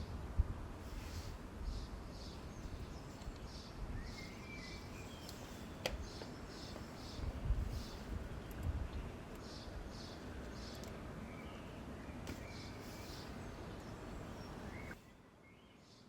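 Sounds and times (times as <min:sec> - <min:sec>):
wind rumble on microphone: 0:00.0 - 0:05.2, 0:06.9 - 0:10.5
small birds chirping: 0:00.9 - 0:16.0.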